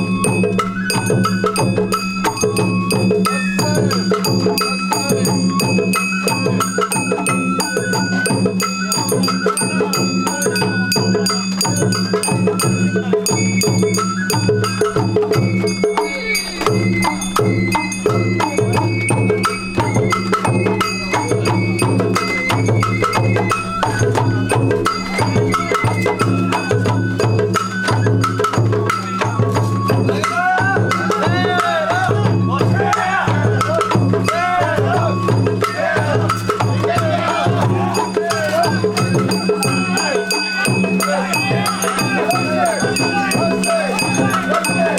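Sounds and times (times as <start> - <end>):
bamboo flute melody: 0.0 - 44.9
drums in fast rhythm: 0.0 - 44.9.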